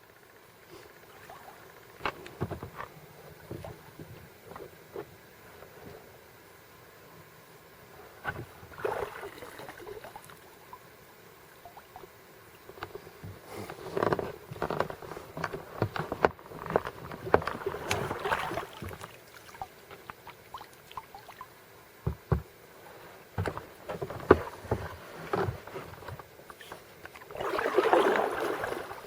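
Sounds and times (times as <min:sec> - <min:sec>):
paddle splashing in water: 0:17.2 - 0:21.5, 0:23.4 - 0:29.0.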